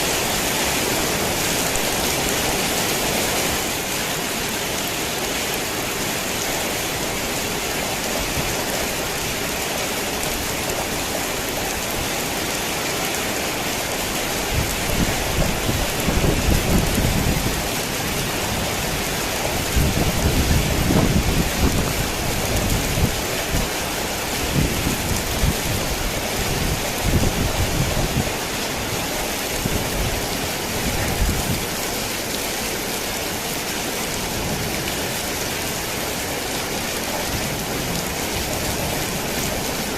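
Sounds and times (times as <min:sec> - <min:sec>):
heavy rain on a tin roof: 0:00.0 - 0:39.9
thunder rumbling: 0:14.5 - 0:23.8.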